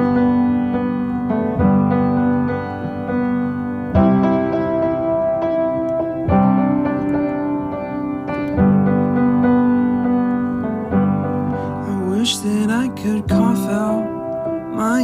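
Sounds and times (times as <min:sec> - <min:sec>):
held piano chords: 0:00.0 - 0:15.0
person singing: 0:11.8 - 0:15.0.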